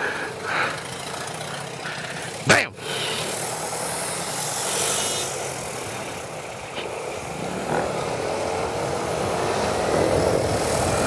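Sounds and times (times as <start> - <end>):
scooter engine running: 0.0 - 11.0
wind noise on microphone: 9.2 - 11.0.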